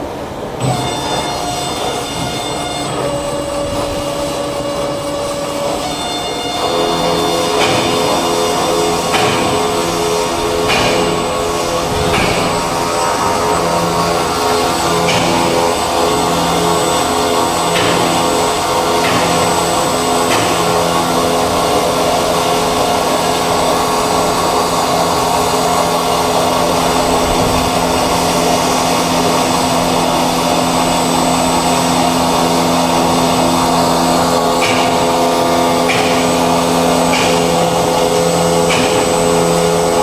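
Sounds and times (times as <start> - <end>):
circular saw cutting metal: 0.6 - 40.0.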